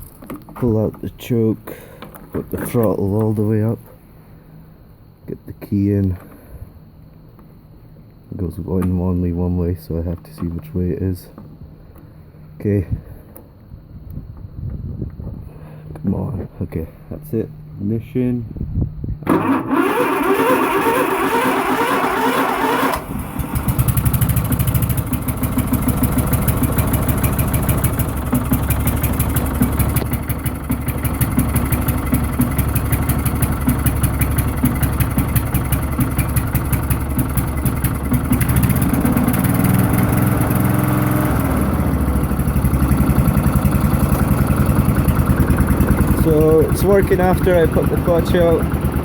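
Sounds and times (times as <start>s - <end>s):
lawn tractor engine running: 0.0s - 4.0s, 19.2s - 49.0s
engine starter cranking: 19.2s - 49.0s.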